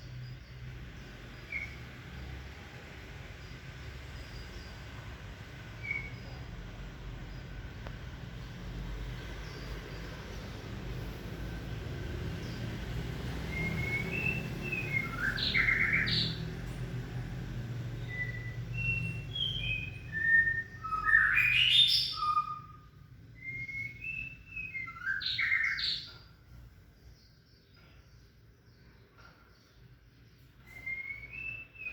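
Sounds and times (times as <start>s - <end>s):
bird singing whistled phrases: 5.8s - 6.4s, 13.5s - 16.4s, 18.0s - 26.1s, 30.6s - 31.9s.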